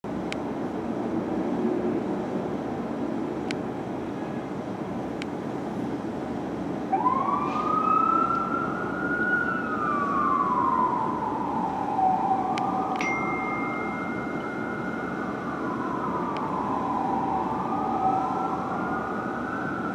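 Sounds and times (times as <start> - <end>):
road and engine noise: 0.0 - 19.9
fire engine siren wailing: 6.8 - 19.9.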